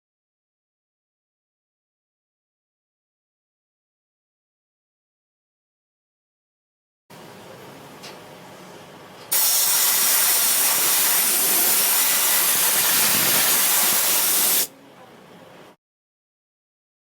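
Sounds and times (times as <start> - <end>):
loud spraying hiss: 9.3 - 14.7.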